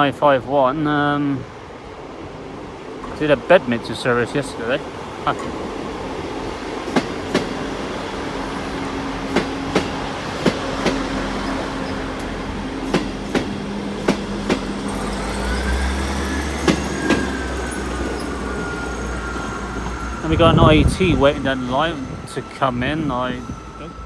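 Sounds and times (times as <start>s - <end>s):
train wheels clicking over rail joints: 3.0s - 20.0s.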